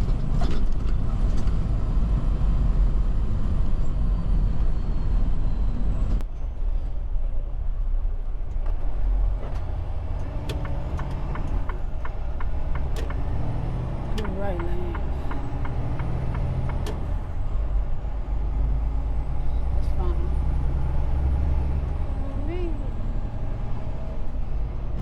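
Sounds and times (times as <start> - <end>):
diesel engine and road rumble: 0.0 - 25.0.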